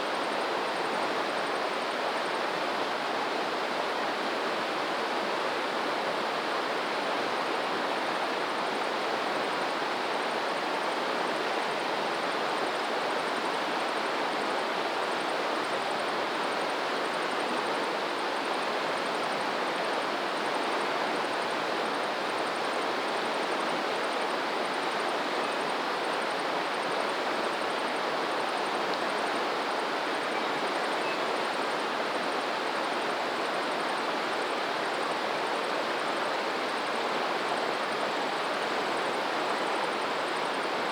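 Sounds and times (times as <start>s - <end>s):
stream water rushing: 13.5s - 40.9s.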